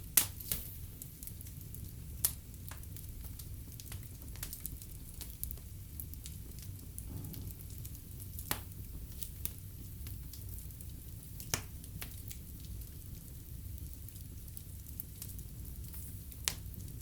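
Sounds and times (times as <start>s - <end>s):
fire burning in fireplace: 0.0s - 17.0s
sharp fire pops: 6.8s - 12.5s.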